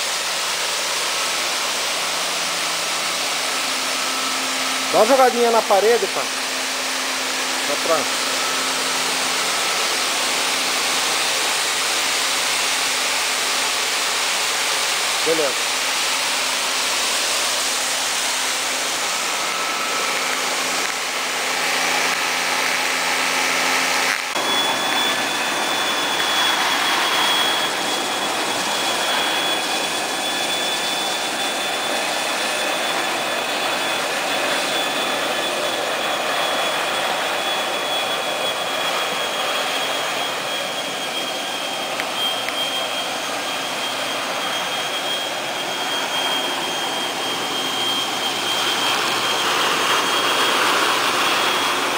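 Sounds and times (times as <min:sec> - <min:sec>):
floor scrubber rushing noise: 0:00.0 - 0:51.9
suction motor high whine: 0:00.0 - 0:51.9
low hum: 0:00.7 - 0:13.8.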